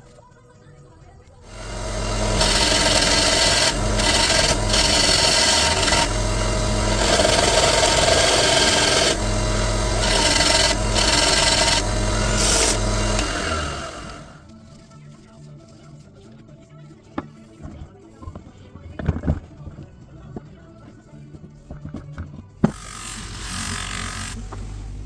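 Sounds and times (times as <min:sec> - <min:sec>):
low motor hum: 0:01.5 - 0:14.4.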